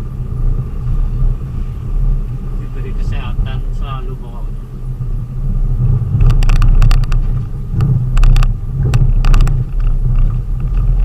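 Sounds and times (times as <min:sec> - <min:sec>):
vehicle engine and road rumble: 0:00.0 - 0:11.0
rattling clicks: 0:06.2 - 0:11.0.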